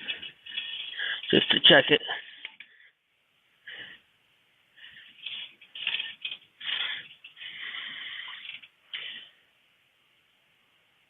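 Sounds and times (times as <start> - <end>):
dipstick rubbing and scraping: 0.0 - 1.8, 4.8 - 9.2.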